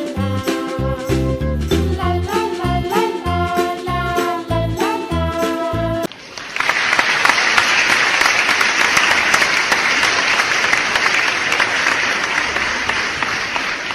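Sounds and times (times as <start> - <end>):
crowd applauding: 6.1 - 13.9.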